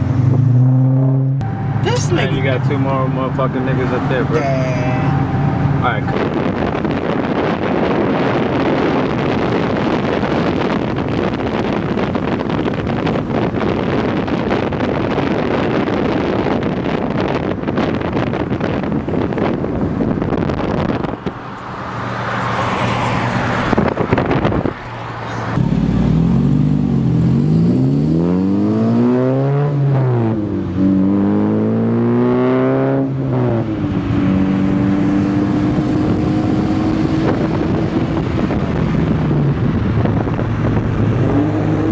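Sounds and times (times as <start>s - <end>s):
car engine revving: 0.0s - 41.9s
loud rushing noise: 1.4s - 11.0s.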